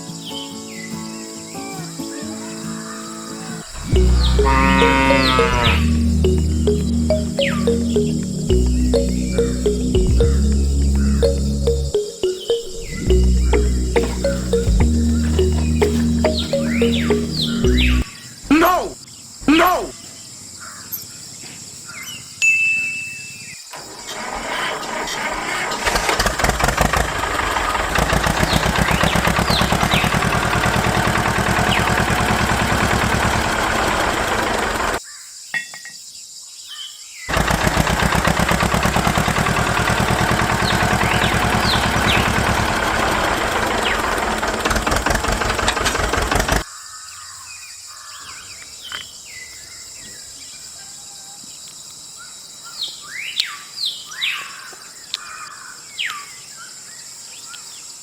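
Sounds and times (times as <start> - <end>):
birds chirping: 0.0 - 18.8
engine running: 3.8 - 12.0, 24.2 - 35.0, 37.3 - 46.6.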